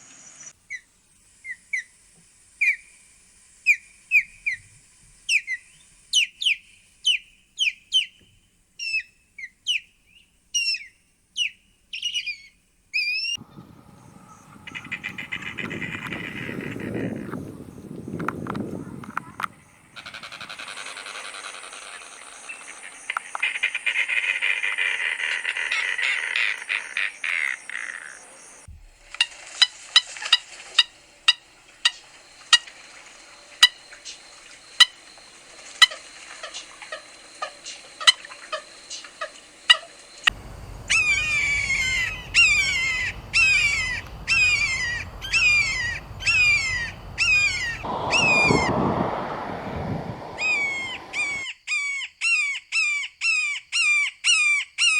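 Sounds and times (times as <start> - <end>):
high bird chatter: 13.4 - 28.4, 40.3 - 51.4
falling high bird notes: 40.3 - 51.4
sharp repeated bird notes: 40.3 - 51.4.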